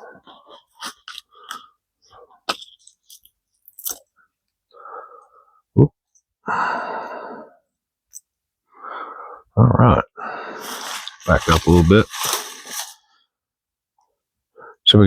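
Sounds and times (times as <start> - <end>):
rasping rustle: 10.6 - 13.1
pouch clicks and rustles: 10.7 - 13.0.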